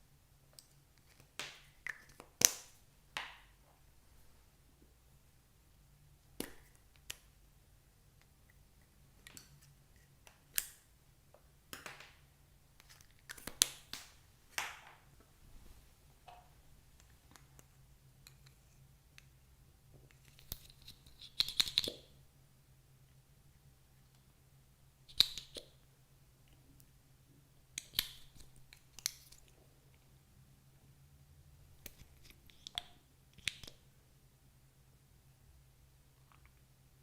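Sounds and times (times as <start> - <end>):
small objects clicking and tapping: 9.2 - 12.2, 20.0 - 22.1.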